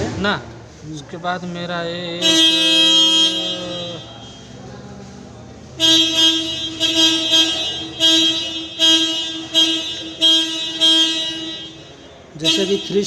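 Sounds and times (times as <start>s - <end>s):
vehicle horn: 2.1s - 4.6s, 5.7s - 13.0s.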